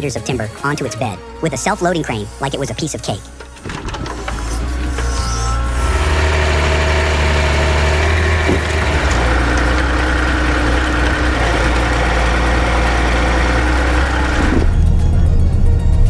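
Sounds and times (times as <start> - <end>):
held whine: 3.3 - 16.0
truck diesel engine running: 3.3 - 16.0.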